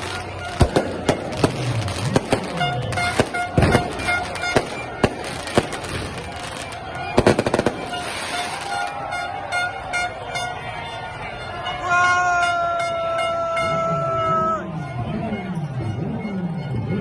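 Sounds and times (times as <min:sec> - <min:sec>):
loud sharp bangs: 0:00.0 - 0:09.0
music: 0:14.6 - 0:17.0.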